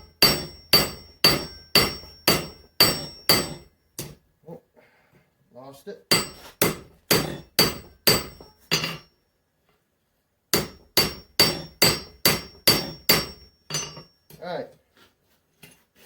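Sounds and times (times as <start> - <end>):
hammer striking steel on anvil: 0.0 - 4.2, 6.1 - 9.1, 10.6 - 14.4.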